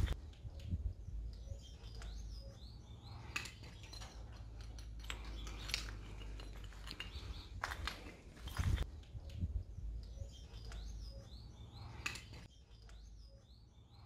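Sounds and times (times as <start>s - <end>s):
small birds chirping: 0.0s - 14.0s
footsteps on tile rubble: 3.7s - 8.9s.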